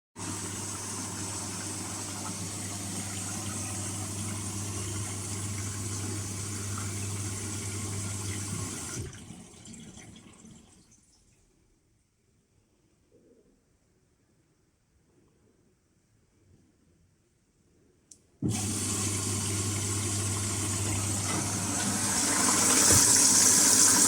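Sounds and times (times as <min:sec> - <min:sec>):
water rushing: 0:00.2 - 0:10.5, 0:18.4 - 0:24.0
washing machine electrical hum: 0:00.2 - 0:11.0, 0:18.4 - 0:24.0.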